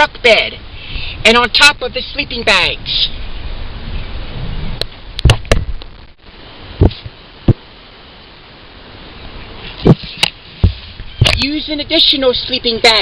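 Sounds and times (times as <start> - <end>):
low rumbling noise: 1.9 - 12.0
sharp knocks and thumps: 5.2 - 5.8, 6.8 - 7.6, 9.8 - 11.4.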